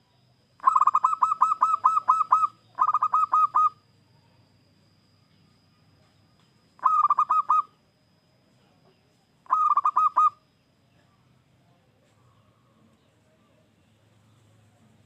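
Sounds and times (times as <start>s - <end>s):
dove cooing: 0.6s - 3.8s, 6.8s - 7.8s, 9.4s - 10.4s.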